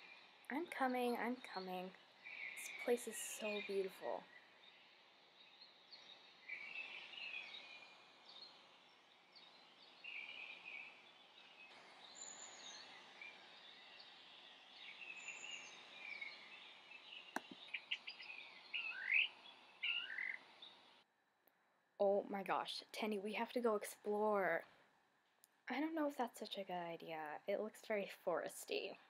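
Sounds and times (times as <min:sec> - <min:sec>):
faint outdoor hiss: 0:00.0 - 0:21.1, 0:22.0 - 0:29.0
birds chirping and calling: 0:17.3 - 0:20.7
sharp click: 0:17.4 - 0:17.6.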